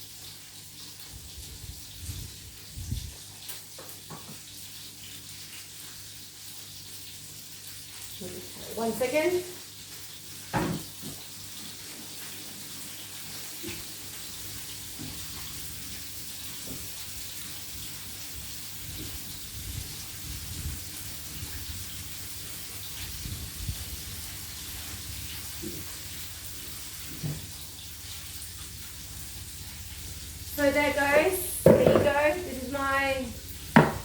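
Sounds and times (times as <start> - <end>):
food sizzling in oil: 0.0 - 34.0
faint kitchen knocks: 10.5 - 11.2, 31.6 - 32.4, 33.8 - 34.0.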